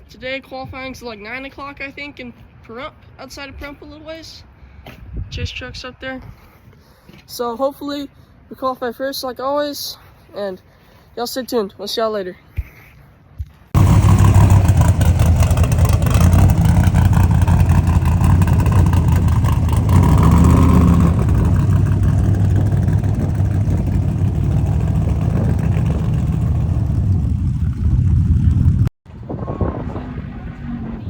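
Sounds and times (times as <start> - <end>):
truck engine revving: 13.8 - 31.0.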